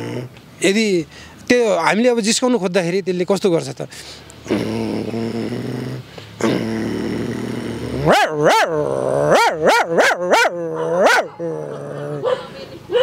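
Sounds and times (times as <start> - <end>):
man growling like a dog: 0.0 - 0.4, 4.4 - 12.3
man imitating dog barks: 7.7 - 12.5.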